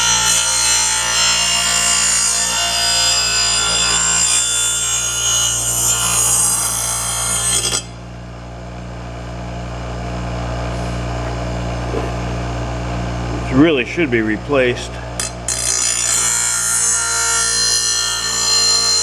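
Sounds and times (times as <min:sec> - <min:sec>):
blade grinding on electric grinder: 0:00.0 - 0:08.0, 0:15.2 - 0:19.0.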